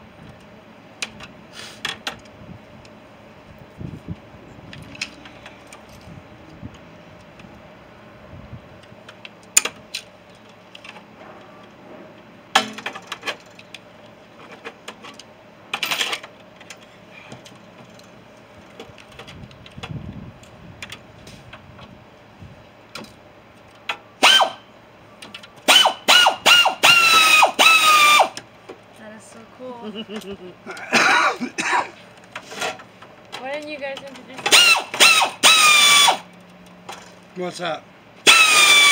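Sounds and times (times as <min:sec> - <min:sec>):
power tool whine bursts: 0:24.2 - 0:24.7, 0:25.7 - 0:28.4, 0:34.5 - 0:36.3, 0:38.2 - 0:38.9.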